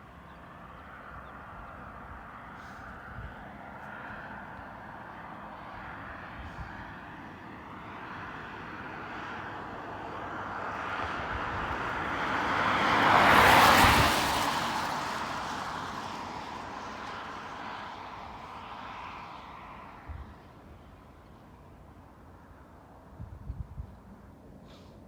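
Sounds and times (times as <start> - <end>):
jet engines passing: 1.6 - 22.1.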